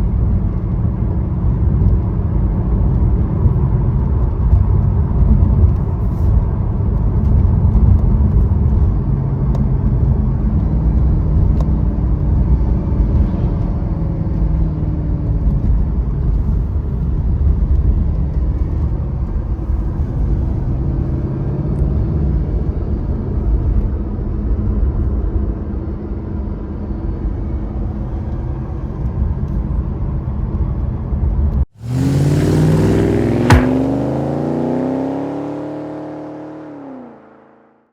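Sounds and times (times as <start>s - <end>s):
car engine running: 31.8s - 36.2s.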